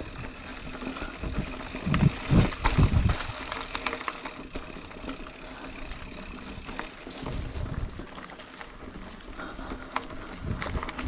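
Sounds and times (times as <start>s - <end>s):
bike frame rattling and clicking: 0.0s - 11.0s
wind buffeting on microphone: 1.0s - 3.4s, 10.2s - 11.0s.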